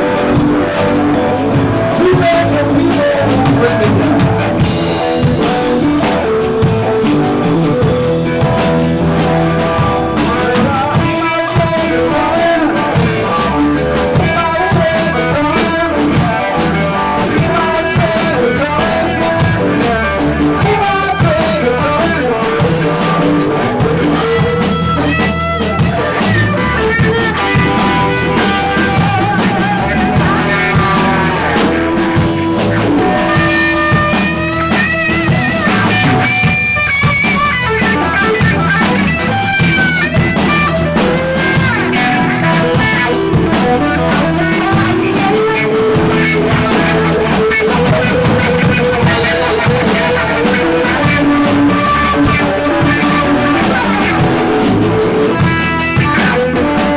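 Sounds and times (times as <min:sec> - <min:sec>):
blues-rock band playing: 0:00.0 - 0:56.9
electric guitar bending notes: 0:00.0 - 0:56.9.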